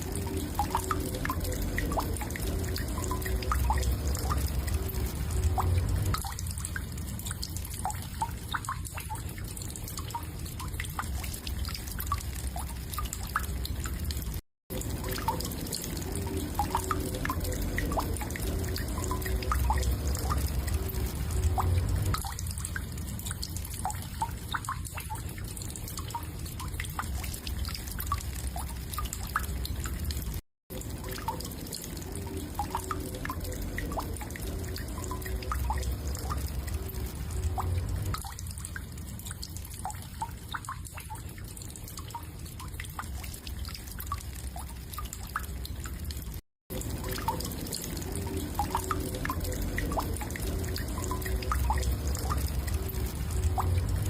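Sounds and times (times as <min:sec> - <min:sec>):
steady low rumble: 0:00.0 - 0:07.0, 0:16.1 - 0:23.0, 0:32.7 - 0:38.7, 0:48.8 - 0:54.0.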